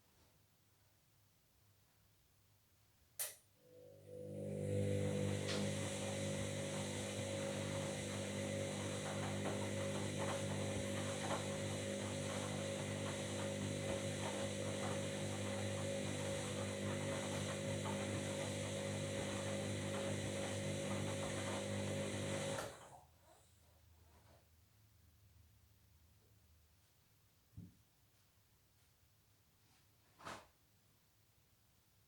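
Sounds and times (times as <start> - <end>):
washing machine humming: 3.7 - 23.0.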